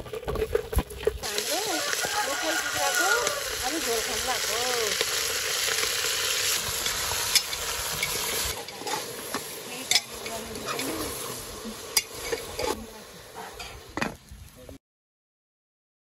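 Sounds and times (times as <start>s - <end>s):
chicken frying in oil: 0.0s - 14.6s
metal ladle scraping pot: 5.0s - 12.8s, 13.4s - 14.2s.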